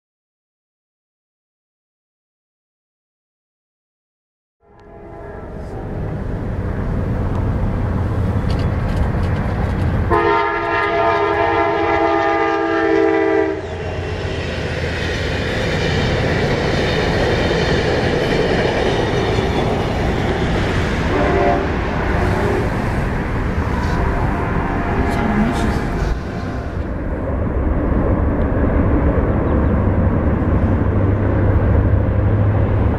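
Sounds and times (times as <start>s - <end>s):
locomotive air horn: 4.6s - 6.0s, 10.1s - 14.2s, 21.0s - 22.8s, 23.7s - 26.8s
passing train rumbling: 4.6s - 32.9s.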